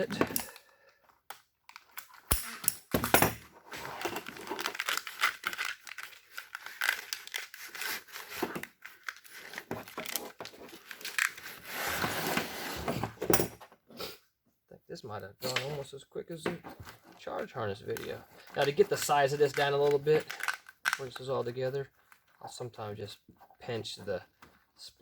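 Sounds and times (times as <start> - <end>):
plastic crinkling and rustling: 3.6 - 12.1, 17.8 - 22.5.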